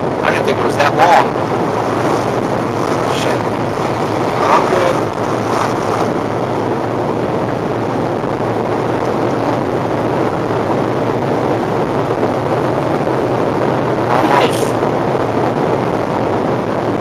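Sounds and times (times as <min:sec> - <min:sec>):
water churning against car: 0:00.0 - 0:09.2.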